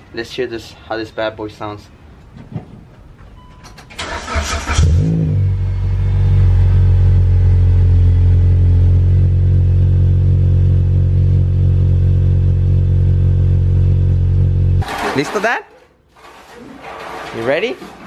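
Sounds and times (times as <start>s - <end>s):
engine starter cranking: 3.8s - 5.2s
car engine idling: 4.0s - 14.8s.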